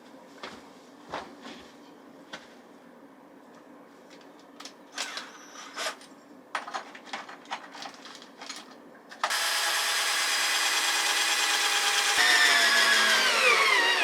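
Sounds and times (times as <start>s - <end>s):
loud power tool running: 9.2s - 14.0s.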